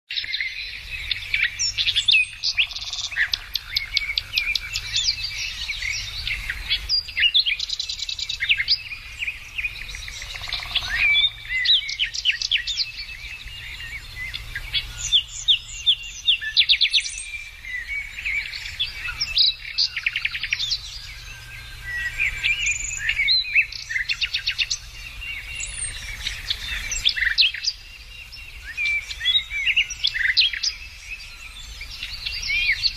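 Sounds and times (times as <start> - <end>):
birds singing: 0.1 - 32.9.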